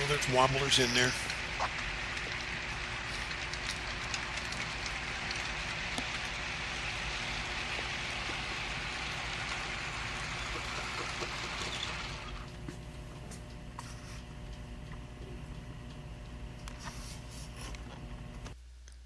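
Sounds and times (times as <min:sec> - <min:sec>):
model train wheels hissing on rails: 0:00.0 - 0:12.5.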